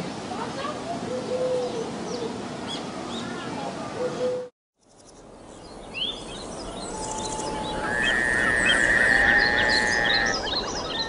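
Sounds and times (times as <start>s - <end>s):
birds chirping and whistling: 5.6s - 11.0s
long trilled bird note: 6.2s - 11.0s.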